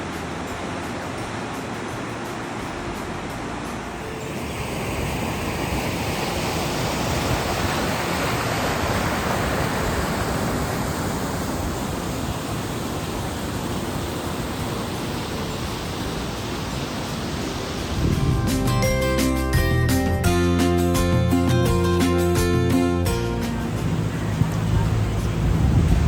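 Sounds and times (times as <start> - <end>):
steady rushing noise: 0.0 - 26.0
guitar music: 17.8 - 26.0.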